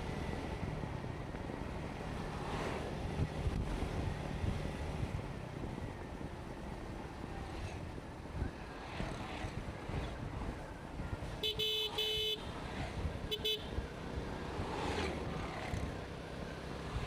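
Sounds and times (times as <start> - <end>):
road noise: 0.0 - 17.0
vehicle horn honking: 11.4 - 12.5, 13.3 - 13.7.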